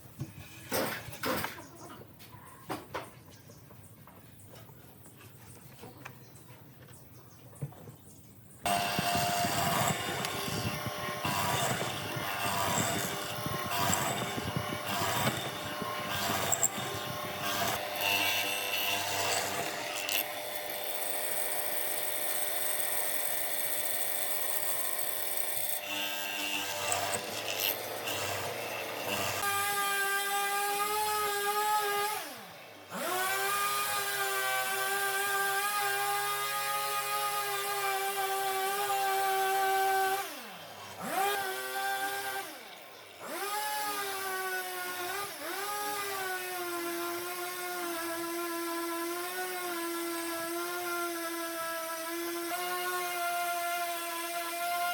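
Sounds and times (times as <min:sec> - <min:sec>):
rough rhythmic wood cutting: 0:08.6 - 0:54.9
high steady motor whine: 0:08.7 - 0:18.7.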